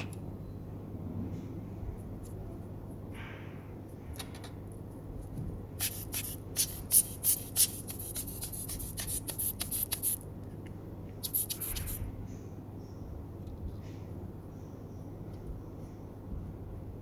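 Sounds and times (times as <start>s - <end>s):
soft brush sweeping: 5.8s - 10.2s.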